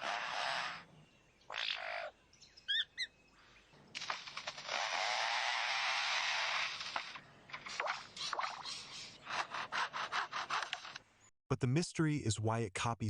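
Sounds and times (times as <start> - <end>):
lyrebird chirps: 0.0 - 9.5.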